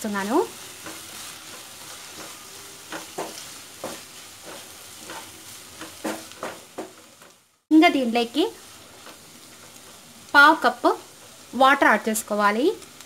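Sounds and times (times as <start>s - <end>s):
onions sizzling in a pan: 0.0s - 13.0s
wooden spatula scraping a pan: 0.2s - 7.4s.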